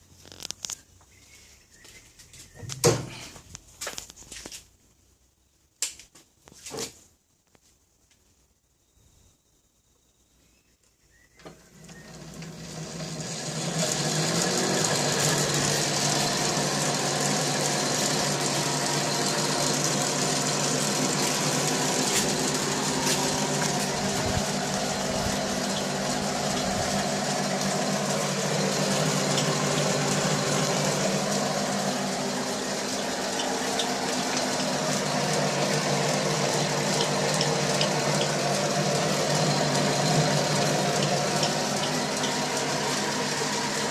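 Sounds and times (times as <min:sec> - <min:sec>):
lathe motor humming and whirring: 0:11.7 - 0:43.9.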